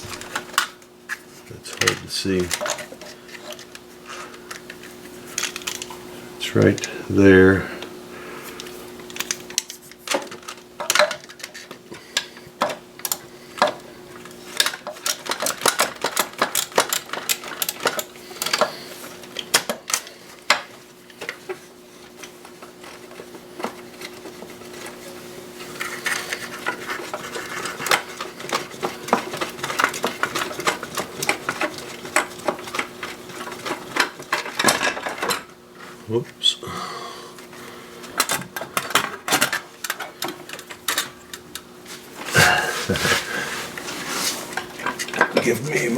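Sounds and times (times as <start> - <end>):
steady low hum: 0.0 - 10.9, 17.9 - 45.9.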